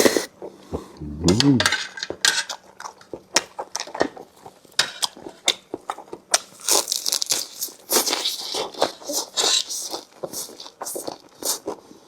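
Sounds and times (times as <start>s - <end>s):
breathy rush: 1.0s - 1.7s
chewing with mouth clicks and smacks: 2.6s - 12.0s.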